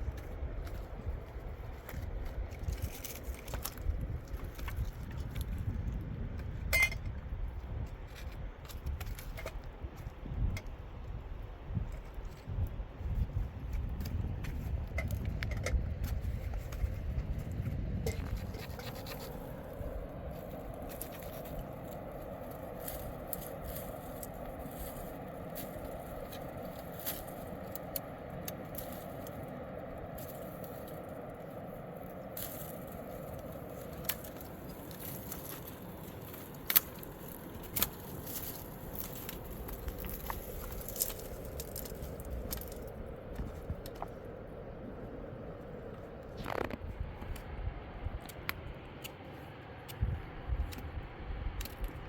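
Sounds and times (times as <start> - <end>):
steady rushing noise: 13.2 - 52.0
sharp clicks and scrapes: 13.7 - 22.0, 46.3 - 47.5.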